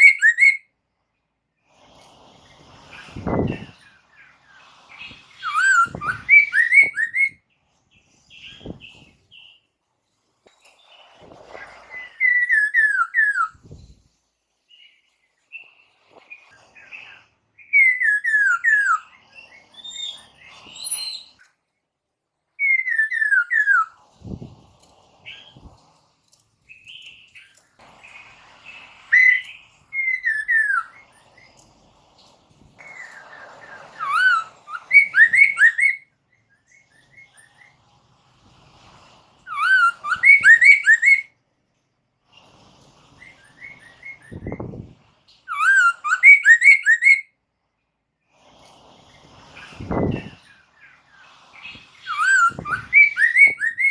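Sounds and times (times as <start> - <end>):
bird whistling descending notes: 0.0 - 0.6, 5.4 - 7.4, 11.9 - 13.6, 17.6 - 19.1, 22.6 - 24.0, 29.1 - 31.1, 32.8 - 36.1, 39.5 - 41.3, 45.5 - 47.3, 52.0 - 53.9.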